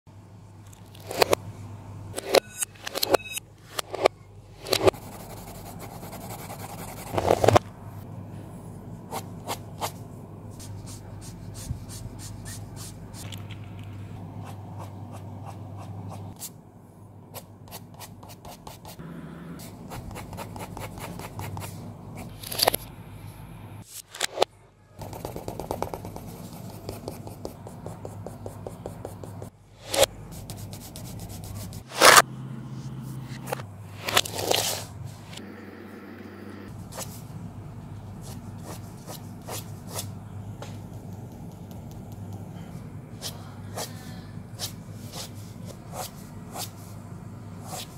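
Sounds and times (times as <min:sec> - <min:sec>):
pencil scratching on paper: 0:04.7 - 0:07.6, 0:19.6 - 0:21.8, 0:25.0 - 0:32.2.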